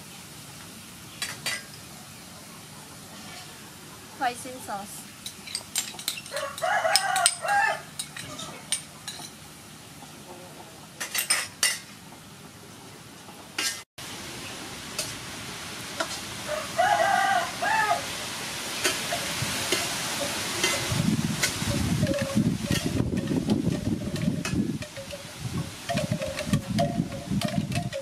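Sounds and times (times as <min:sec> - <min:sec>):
rooster crowing: 0:06.3 - 0:08.6, 0:16.4 - 0:18.2
beef sizzling in a wok: 0:14.0 - 0:23.0
metal spatula scraping a pan: 0:18.9 - 0:23.3.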